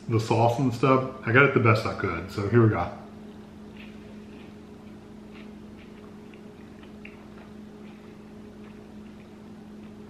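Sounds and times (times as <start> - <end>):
person chewing crunchy pastry: 3.7 - 10.0.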